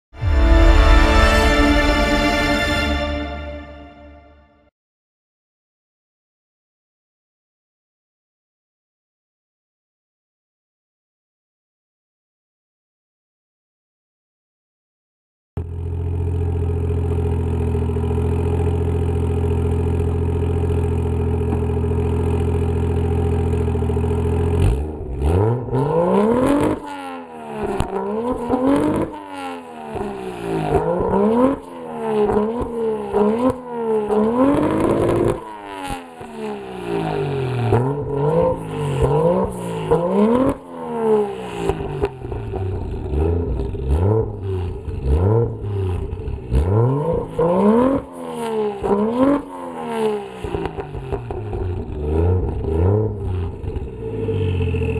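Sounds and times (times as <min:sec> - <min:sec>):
car engine revving: 0:24.6 - 0:54.9.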